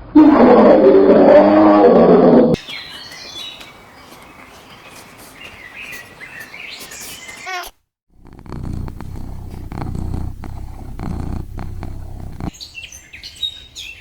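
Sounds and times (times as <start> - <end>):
faint bird chirps: 2.6 - 7.7
farm animal calling: 2.6 - 7.7.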